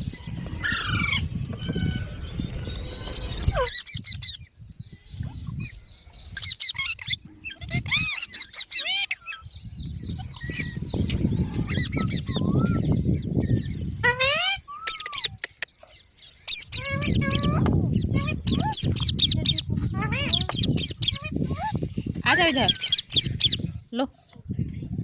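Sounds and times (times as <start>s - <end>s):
low rustling rumble: 0.0s - 3.7s
parrots chirping and squawking: 0.0s - 4.5s, 5.2s - 23.7s.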